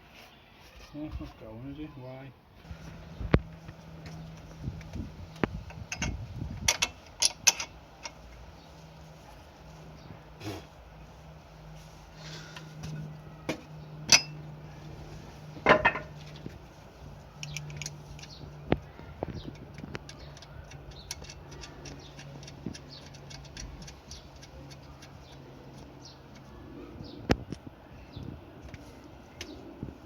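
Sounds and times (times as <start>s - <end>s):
low steady hum: 2.3s - 30.0s
tools and metal fasteners clinking: 3.4s - 8.9s, 12.6s - 14.5s, 15.5s - 26.5s.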